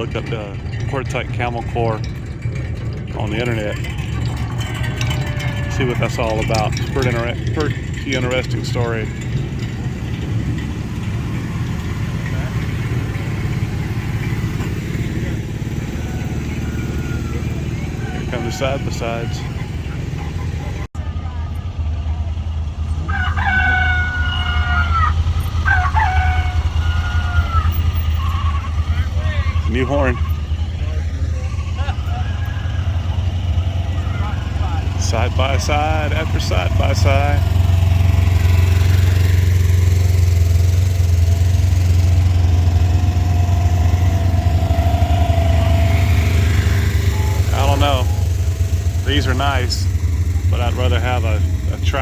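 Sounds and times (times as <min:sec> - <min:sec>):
engines idling: 0:00.0 - 0:52.0
multi-tone vehicle horn: 0:23.4 - 0:51.7.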